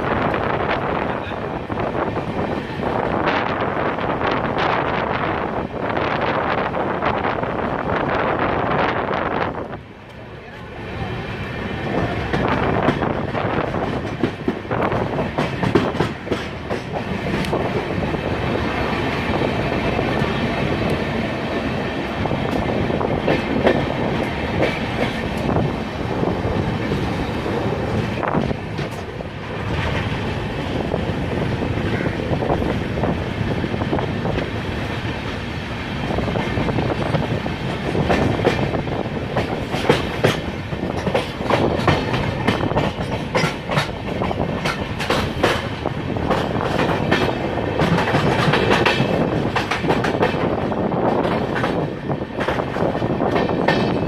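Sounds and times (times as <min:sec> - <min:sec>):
train passing rumble: 0:00.0 - 0:54.0
wheels clattering over rail joints: 0:36.4 - 0:54.0.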